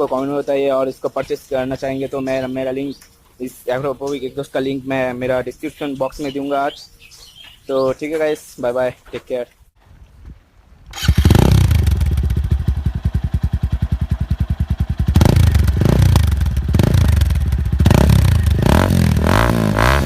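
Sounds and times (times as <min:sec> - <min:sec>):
motorcycle engine idling and revving: 0:10.9 - 0:20.0.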